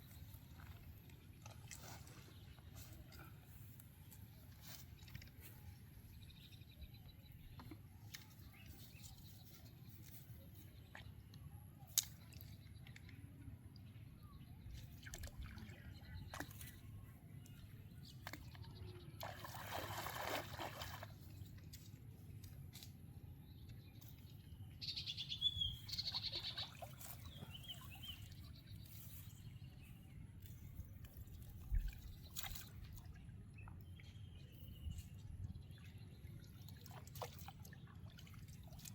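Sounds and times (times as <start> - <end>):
bird chirps: 24.8 - 29.8.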